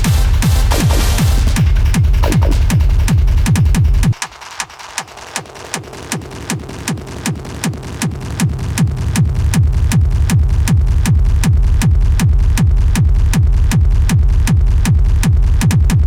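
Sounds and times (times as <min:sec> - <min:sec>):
heavy low bass: 0:00.0 - 0:04.2, 0:07.2 - 0:16.0
pounding kick drum: 0:00.0 - 0:04.4, 0:05.8 - 0:16.0
sharp hi-hat ticks: 0:00.0 - 0:09.2.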